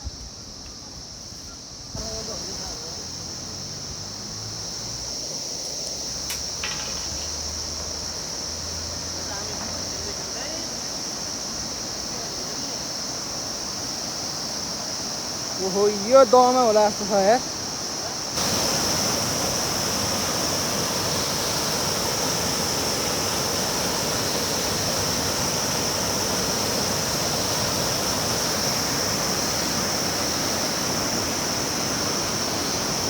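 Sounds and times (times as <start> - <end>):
high-pitched insect drone: 0.0 - 33.0
flowing river water: 6.6 - 33.0.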